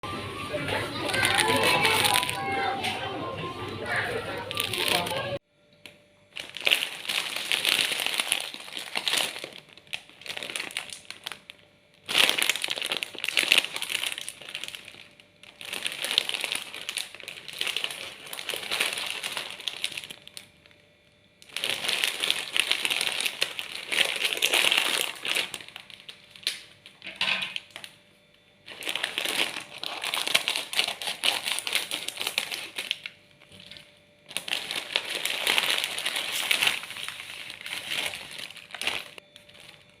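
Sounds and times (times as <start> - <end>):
plastic packaging crinkling: 0.3 - 5.4, 6.3 - 28.0, 28.6 - 40.0.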